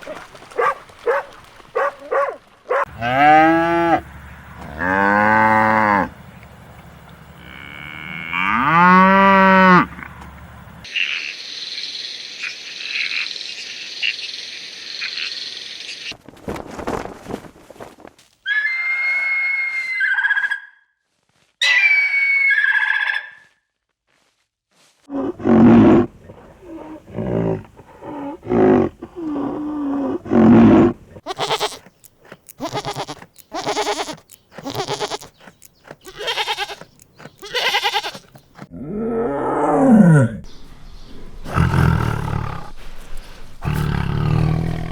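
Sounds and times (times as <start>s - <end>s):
animal calls: 21.6s - 23.5s, 25.1s - 38.6s, 39.4s - 44.9s.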